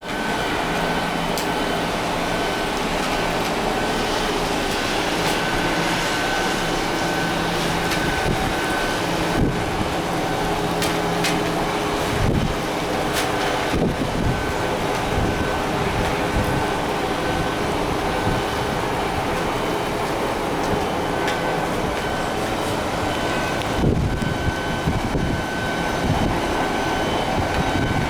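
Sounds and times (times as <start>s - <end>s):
rain falling: 0.1s - 28.0s
sharp drips and splashes: 0.1s - 28.0s.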